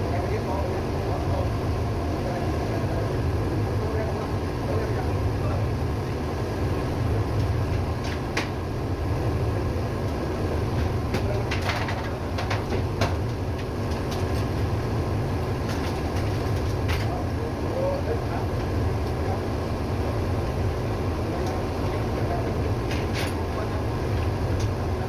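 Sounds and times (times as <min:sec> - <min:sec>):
engine low drone: 0:00.0 - 0:25.0
sharp clicks and knocks: 0:10.8 - 0:14.5.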